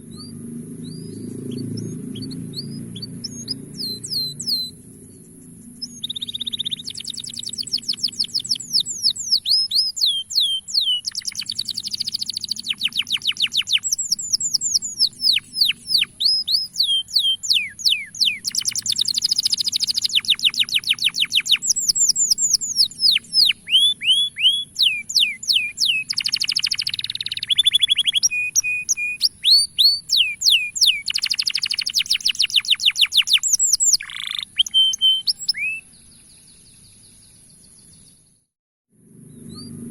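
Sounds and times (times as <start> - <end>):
canary singing trills: 0.0 - 38.4, 39.3 - 39.9.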